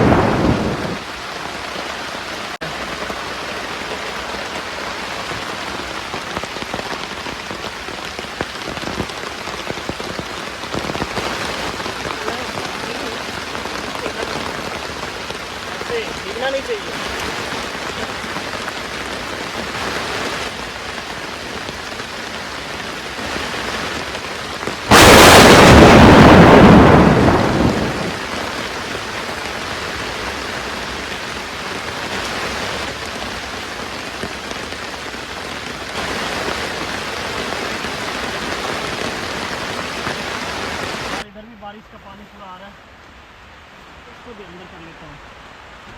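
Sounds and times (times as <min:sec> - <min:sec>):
close thunder clap: 0:00.0 - 0:01.1, 0:24.9 - 0:28.3
heavy rain falling: 0:00.0 - 0:45.9.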